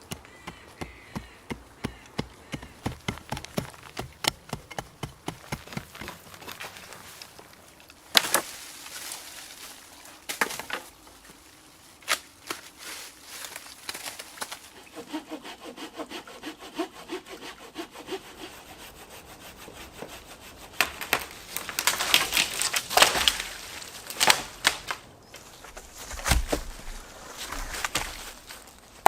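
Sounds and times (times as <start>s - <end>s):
wood knocking and scraping: 0.0s - 11.4s
saw cutting wood: 14.8s - 21.2s.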